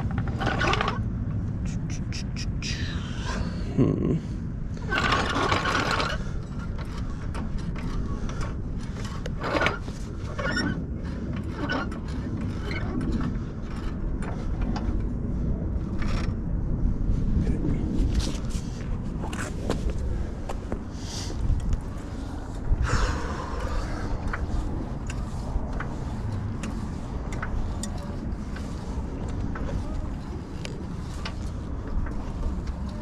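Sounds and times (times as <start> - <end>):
ratcheting rattle: 0.0 - 1.1, 4.8 - 15.1
steady low rumble: 0.0 - 33.0
tools clicking and scraping: 24.3 - 33.0.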